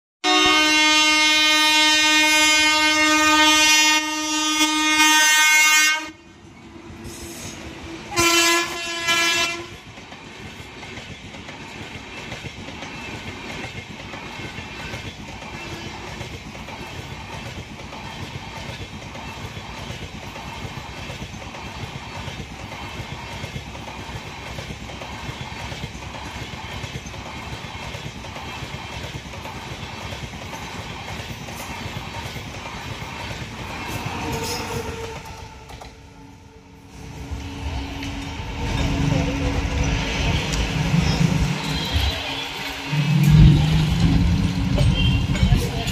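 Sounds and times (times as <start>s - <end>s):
locomotive horn blasts: 0.2s - 6.2s, 8.1s - 9.8s, 41.5s - 43.8s
train coaches rumbling past: 0.2s - 45.9s
clickety-clack of wheels on rails: 0.4s - 36.5s, 37.1s - 45.9s.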